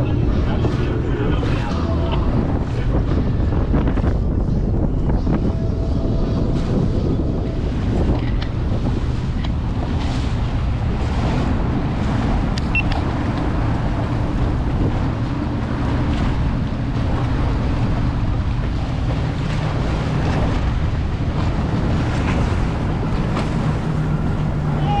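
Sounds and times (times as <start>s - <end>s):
boat noise rumble: 0.0s - 25.0s
wind buffeting microphone: 0.0s - 25.0s
water washing: 6.7s - 25.0s.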